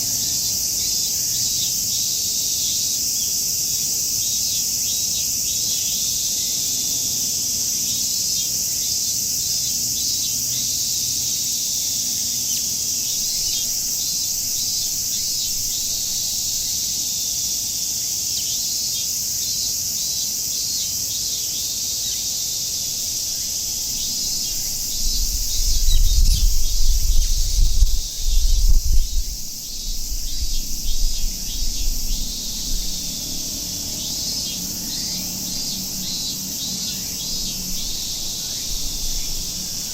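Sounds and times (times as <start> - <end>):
cicadas shrilling: 0.0 - 39.9
low rumbling gusts: 23.6 - 39.9.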